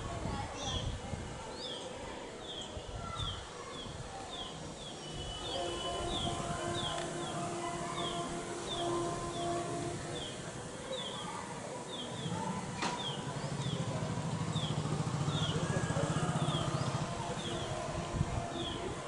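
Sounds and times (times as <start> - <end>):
vehicle engine running: 12.2 - 18.8.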